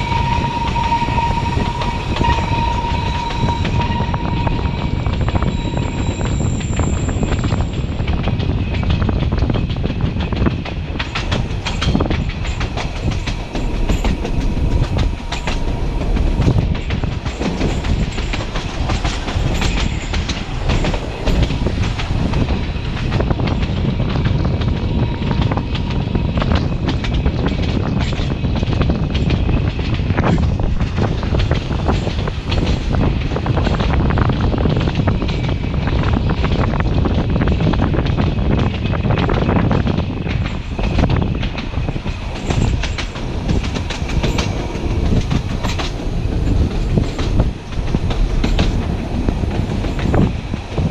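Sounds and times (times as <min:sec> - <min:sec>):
faint high ringing: 0:00.0 - 0:07.8
train wheels rumbling on rails: 0:00.0 - 0:50.9
clattering clicks over rail joints: 0:25.4 - 0:50.9.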